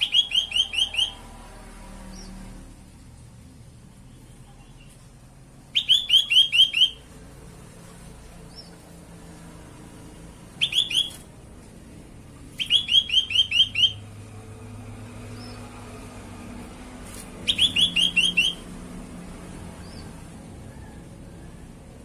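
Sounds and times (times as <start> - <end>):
bird repeated sharp chirps: 0.0 - 1.2, 5.7 - 7.1, 10.5 - 11.3, 12.5 - 14.1, 17.1 - 18.7.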